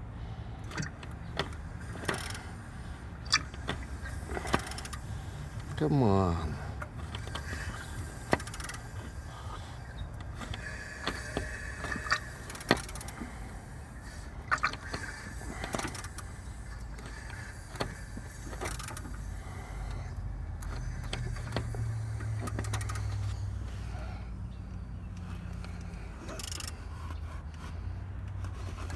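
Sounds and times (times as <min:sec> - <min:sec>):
steady low hum: 0:00.0 - 0:28.9
wrench clicks and knocks: 0:14.5 - 0:23.5, 0:25.1 - 0:27.2.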